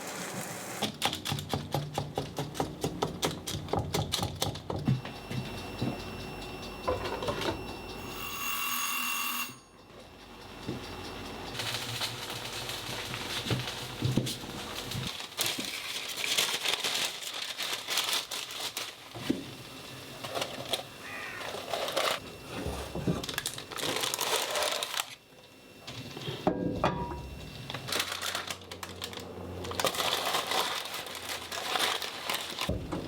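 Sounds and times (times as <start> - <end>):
low steady hum: 4.9 - 8.2
crinkling handling noises: 11.5 - 25.2, 27.6 - 32.9.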